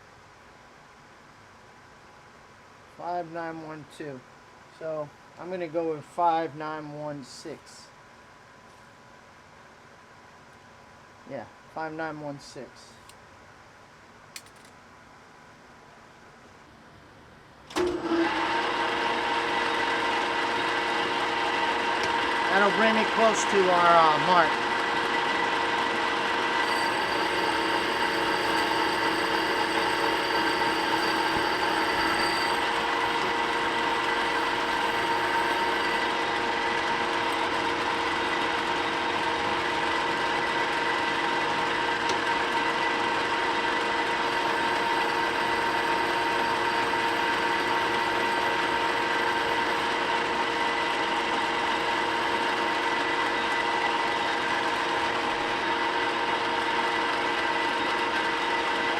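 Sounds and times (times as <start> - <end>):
machine tool whining: 17.7 - 58.9.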